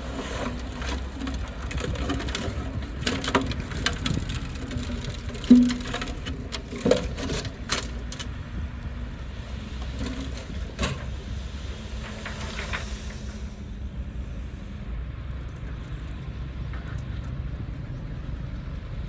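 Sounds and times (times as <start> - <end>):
heavy machinery diesel engine: 0.0 - 19.0
faint clanks: 0.4 - 8.3.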